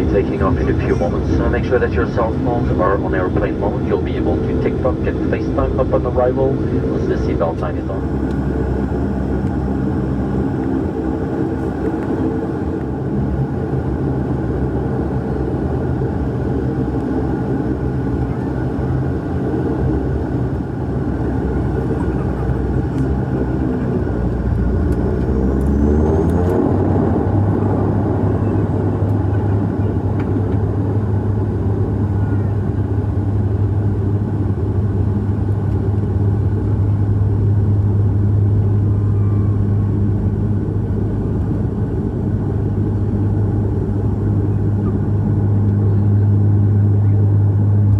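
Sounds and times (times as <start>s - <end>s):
propeller drone in aircraft cabin: 0.0s - 47.9s.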